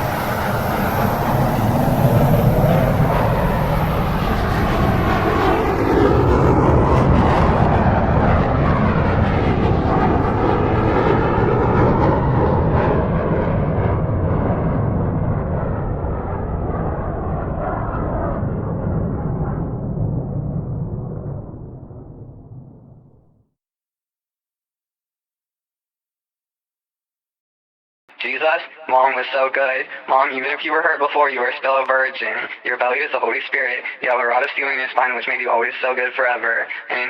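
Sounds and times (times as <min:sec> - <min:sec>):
aircraft passing overhead: 0:00.0 - 0:23.1.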